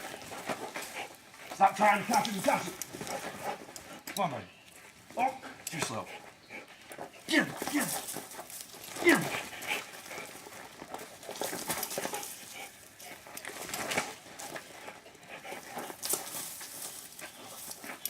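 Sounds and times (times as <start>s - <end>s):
dog paws scuffling on ground: 0.0s - 18.0s.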